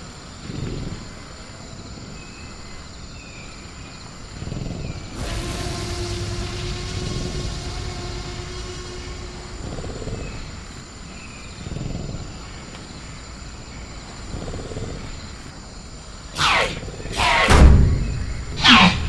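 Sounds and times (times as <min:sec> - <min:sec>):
high-pitched insect tone: 0:04.9 - 0:12.6
low rumble: 0:05.0 - 0:12.4, 0:17.2 - 0:19.0
dinosaur screech falling in pitch: 0:16.4 - 0:17.6, 0:18.6 - 0:19.0.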